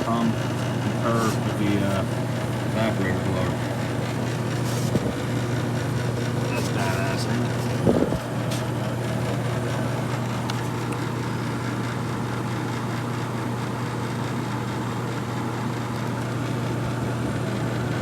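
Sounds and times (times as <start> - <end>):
air conditioner motor hum: 0.0 - 18.0
rush of air from fans: 6.4 - 10.9.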